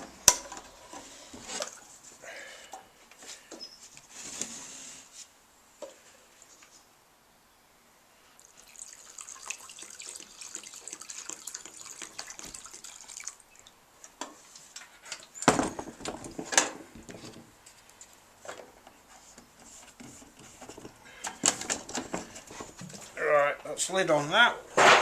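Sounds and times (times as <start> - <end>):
liquid trickling into a tin: 8.4 - 13.7.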